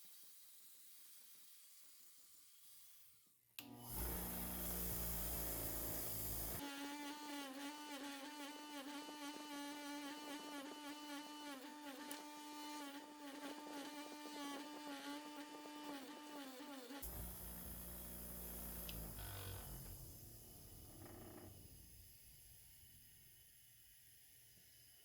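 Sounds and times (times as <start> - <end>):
small electric motor whining: 3.6 - 22.1.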